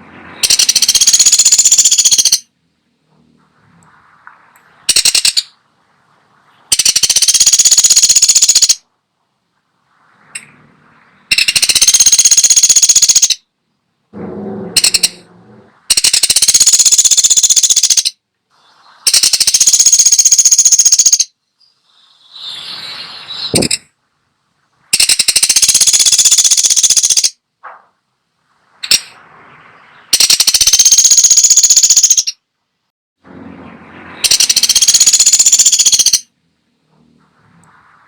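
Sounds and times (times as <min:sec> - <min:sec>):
woodpecker rattling trills: 0:00.4 - 0:02.5, 0:04.9 - 0:05.6, 0:06.7 - 0:08.8, 0:11.3 - 0:13.4, 0:14.8 - 0:15.2, 0:15.9 - 0:18.2, 0:19.1 - 0:21.3, 0:24.9 - 0:27.4, 0:30.1 - 0:32.4, 0:34.2 - 0:36.3.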